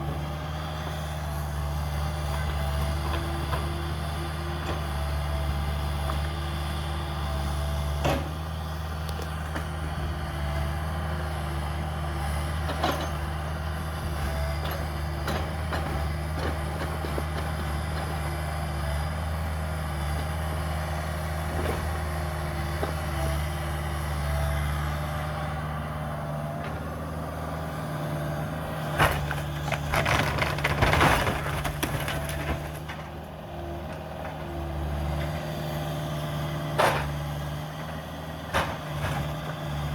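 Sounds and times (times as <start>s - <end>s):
excavator diesel engine running: 0.0s - 39.9s
demolition debris cracking: 28.9s - 33.2s.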